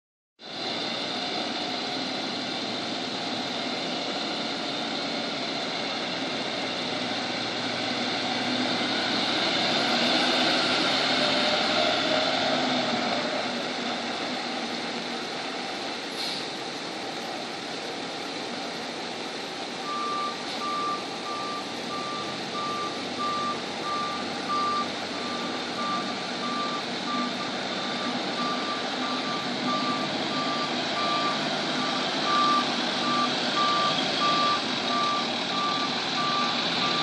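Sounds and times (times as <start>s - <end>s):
truck engine drone: 0.4s - 37.0s.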